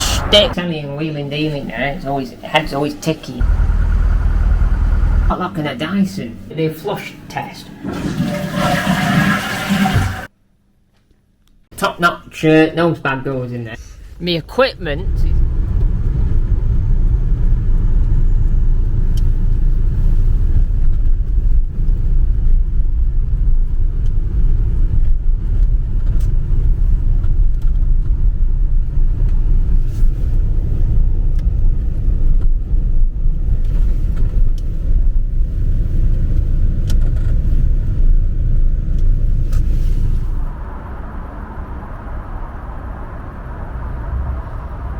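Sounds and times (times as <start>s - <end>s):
car engine and road noise: 0.0s - 0.6s, 3.4s - 5.4s, 13.8s - 44.9s.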